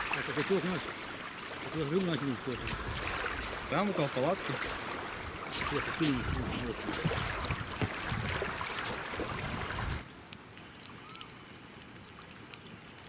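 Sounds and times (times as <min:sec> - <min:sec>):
water rushing: 0:00.0 - 0:10.1
wind on microphone: 0:02.3 - 0:10.0
short bird calls: 0:11.0 - 0:11.3.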